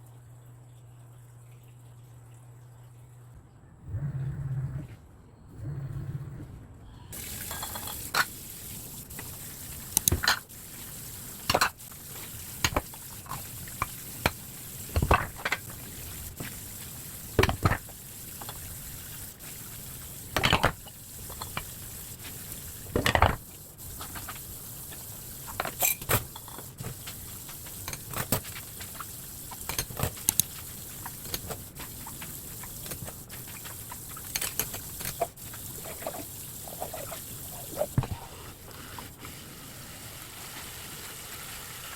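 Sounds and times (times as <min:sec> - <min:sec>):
steady hiss: 0:07.0 - 0:41.9
dishes and utensils clinking: 0:07.1 - 0:08.4, 0:25.5 - 0:26.7.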